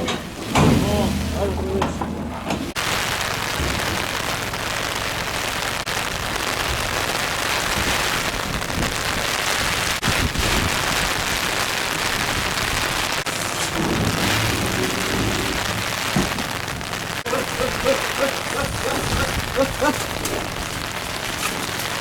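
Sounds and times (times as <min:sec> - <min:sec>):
faint low bumps: 0:00.0 - 0:22.0
heavy rain falling: 0:00.0 - 0:22.0.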